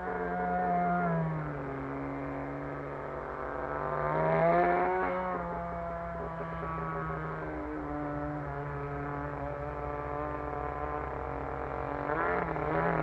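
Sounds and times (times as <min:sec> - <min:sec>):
model plane engine running: 0:05.1 - 0:13.0.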